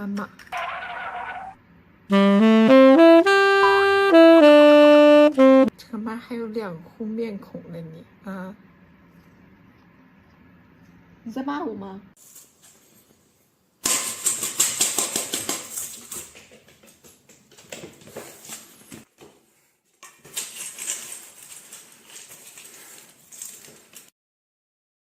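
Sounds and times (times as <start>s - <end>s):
rapid dry clicking and rustling: 13.8s - 18.7s, 20.0s - 24.1s.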